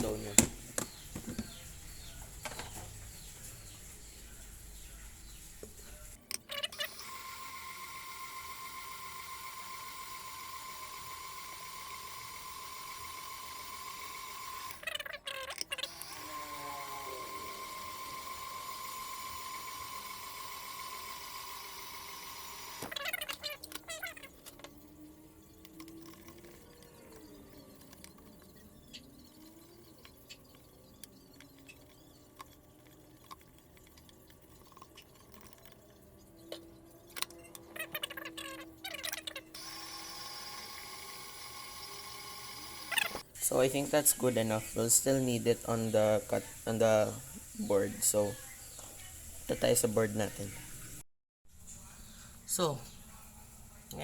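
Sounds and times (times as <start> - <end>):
electric mixer motor whining: 6.7 - 14.8, 15.8 - 30.2, 39.5 - 48.3.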